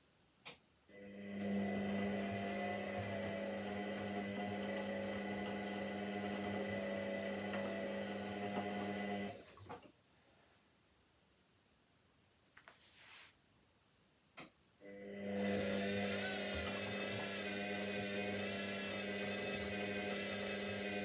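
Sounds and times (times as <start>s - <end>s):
washing machine humming: 1.0s - 9.8s, 14.8s - 21.0s.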